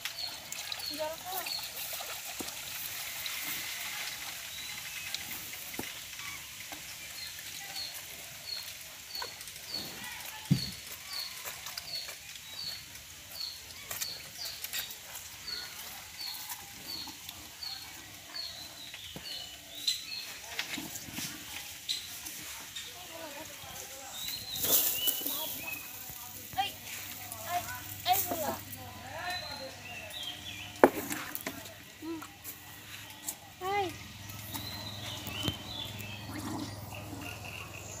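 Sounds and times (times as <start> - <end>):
bird chirping: 33.1 - 38.0.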